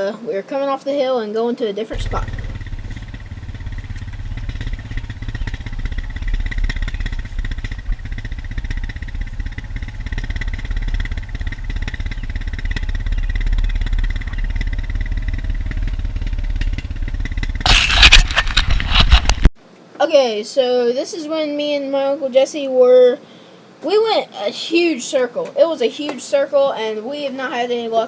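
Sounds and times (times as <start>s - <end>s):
vehicle engine rumbling: 2.0s - 19.5s
microphone handling crackle: 15.4s - 19.5s.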